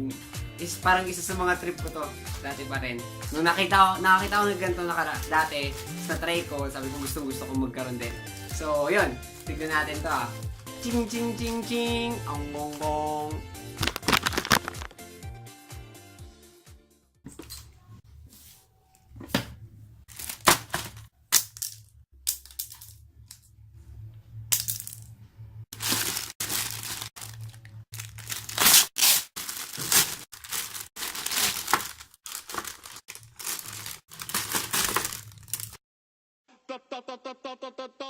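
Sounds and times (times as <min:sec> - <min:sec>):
packaging ripping and crinkling: 0:13.8 - 0:15.0, 0:20.1 - 0:21.7, 0:25.8 - 0:35.8.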